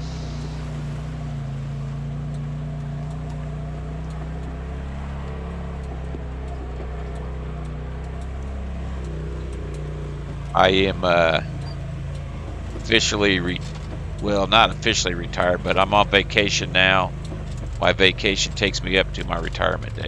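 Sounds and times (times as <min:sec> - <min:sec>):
engine humming steadily: 0:00.0 - 0:20.0.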